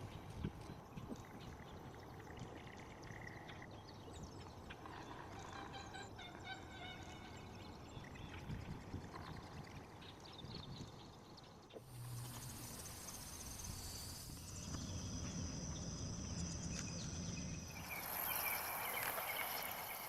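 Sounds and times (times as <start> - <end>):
insects trilling: 11.8 - 20.0.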